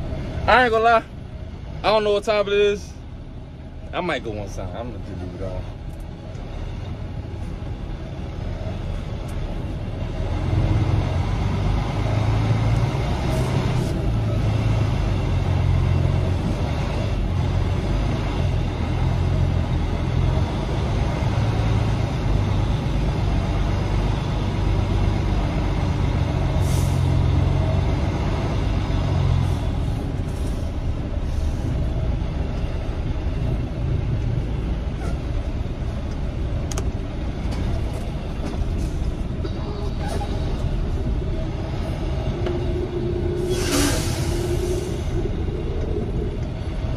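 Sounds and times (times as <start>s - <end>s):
truck diesel engine droning: 0.0s - 46.9s
short air hiss: 43.4s - 45.0s.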